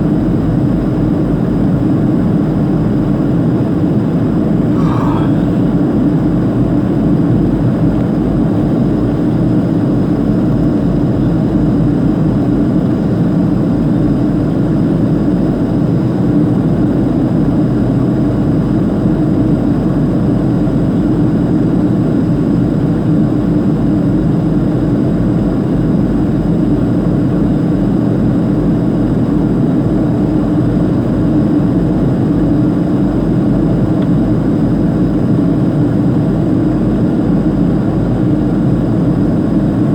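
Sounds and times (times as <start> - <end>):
jet engines droning: 4.0 - 9.4
faint high whine: 4.7 - 6.1.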